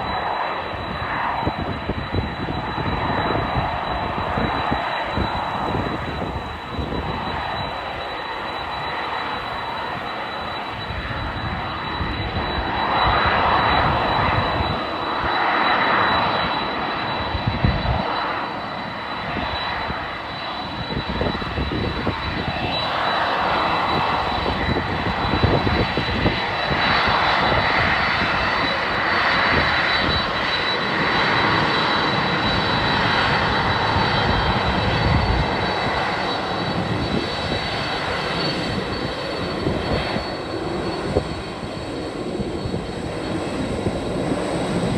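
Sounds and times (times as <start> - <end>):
jet engines rushing: 0.0 - 44.9
wind rumbling on microphone: 0.0 - 44.9.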